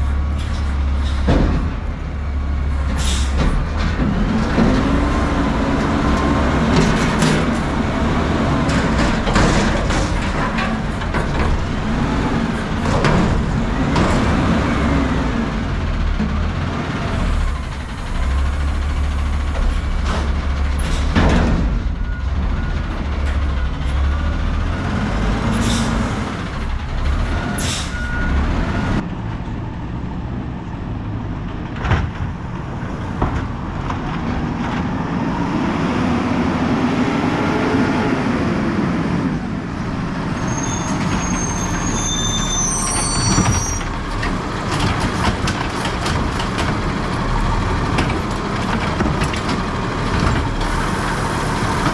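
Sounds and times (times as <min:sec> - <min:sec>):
diesel truck engine running: 0:00.0 - 0:51.9
high squeals: 0:40.3 - 0:44.0.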